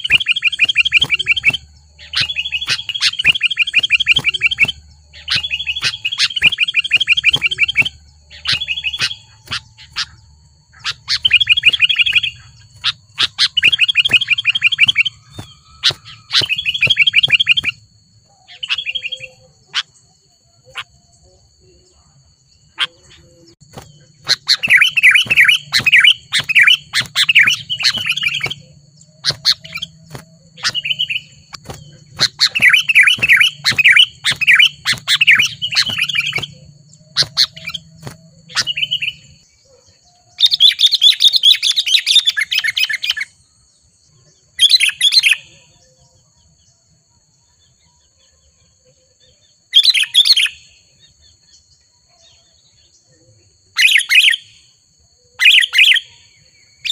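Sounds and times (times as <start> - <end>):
bulbuls chattering calls: 0.0 - 17.8, 22.7 - 39.4.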